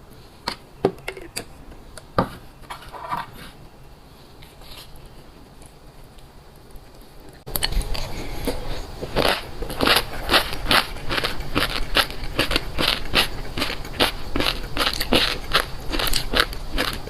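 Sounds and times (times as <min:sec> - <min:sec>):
chewing crunchy food: 0:06.8 - 0:17.0.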